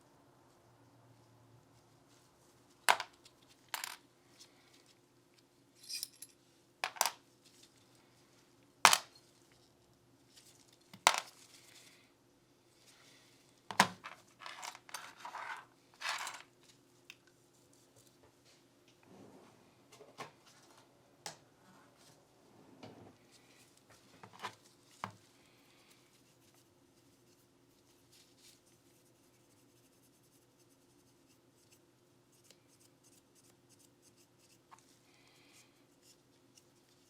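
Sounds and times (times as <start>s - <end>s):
metal pistol parts clinking: 5.8s - 7.2s, 8.9s - 9.2s
soft scraping and rustling: 7.2s - 8.6s, 9.2s - 12.1s, 12.7s - 21.0s, 21.6s - 29.0s.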